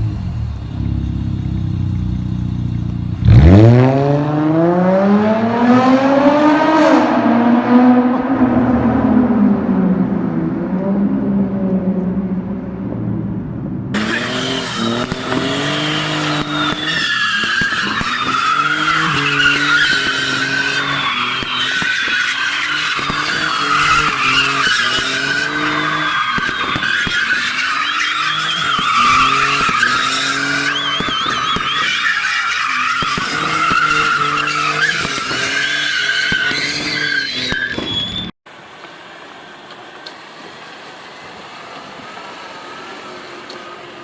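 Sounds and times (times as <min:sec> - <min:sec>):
quiet steady engine: 0:00.0 - 0:03.2
car engine revving hard: 0:03.2 - 0:09.5, 0:14.0 - 0:37.6
tyres squealing: 0:14.0 - 0:38.4.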